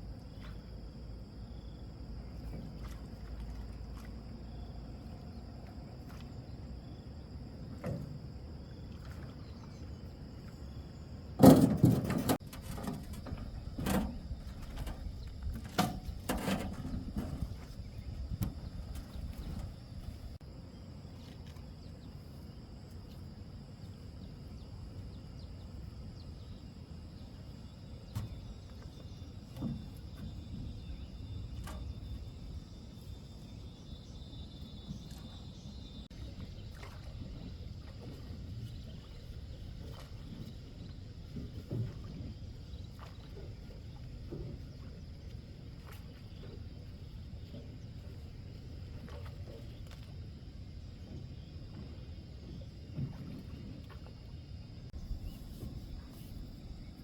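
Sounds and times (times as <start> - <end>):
sharp knocks and clatters: 11.4 - 14.2.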